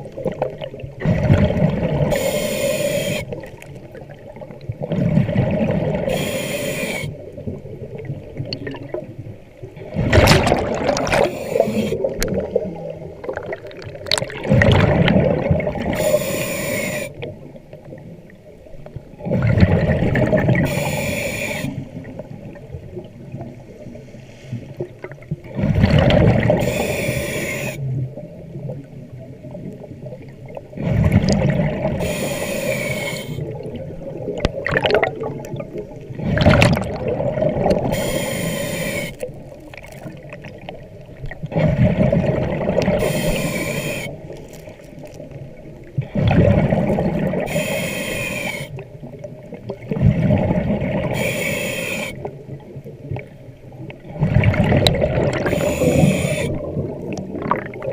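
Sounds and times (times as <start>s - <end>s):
exhaled air bubbling: 0.0s - 23.6s, 24.8s - 57.9s
diver breathing through regulator: 2.1s - 3.4s, 6.1s - 7.2s, 11.0s - 12.2s, 15.8s - 17.2s, 20.6s - 22.0s, 26.5s - 27.9s, 32.0s - 33.6s, 37.8s - 39.3s, 42.9s - 44.2s, 47.4s - 48.8s, 51.0s - 52.3s, 55.3s - 56.7s.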